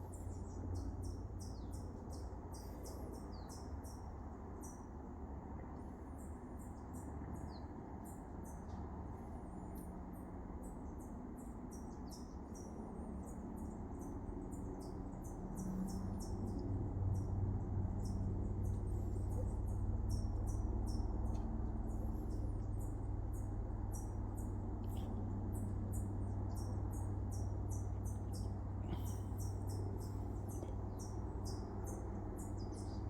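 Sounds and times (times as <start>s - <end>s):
birds chirping high-pitched: 18.0s - 33.0s.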